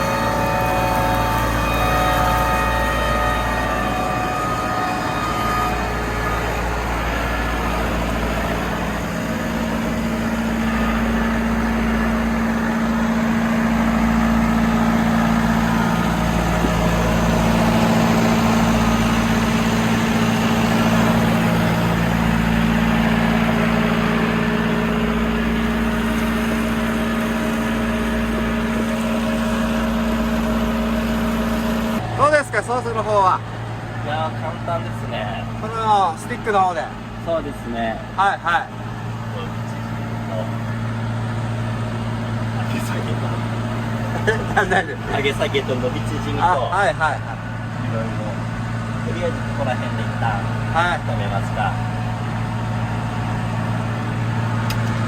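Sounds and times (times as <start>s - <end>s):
steady low hum: 0.0s - 55.0s
tractor engine running: 0.0s - 55.0s.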